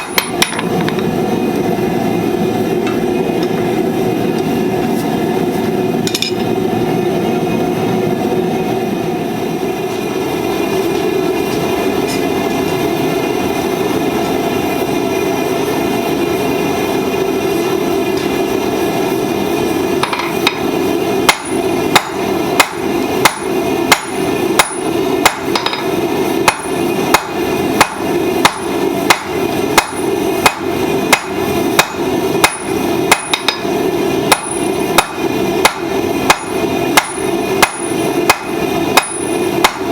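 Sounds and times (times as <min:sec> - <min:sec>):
hammer striking steel on anvil: 0:00.0 - 0:01.1, 0:06.1 - 0:06.5, 0:20.0 - 0:39.9.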